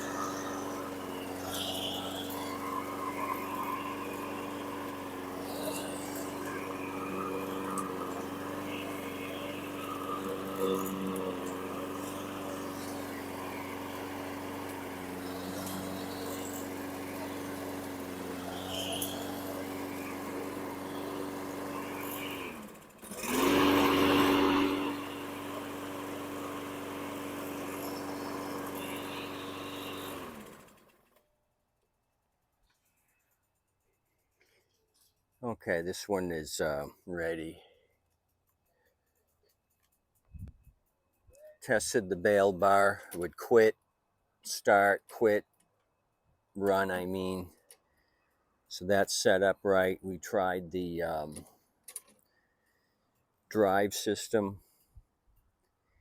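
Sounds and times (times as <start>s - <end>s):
lawn mower engine running: 0.0s - 31.2s.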